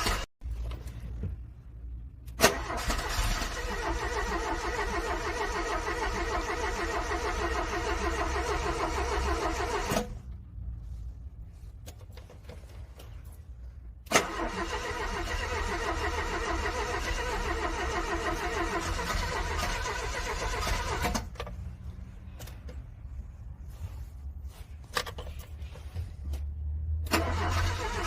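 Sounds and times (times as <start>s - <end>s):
car engine cranking: 2.2s - 10.3s, 14.0s - 21.6s, 27.0s - 28.0s.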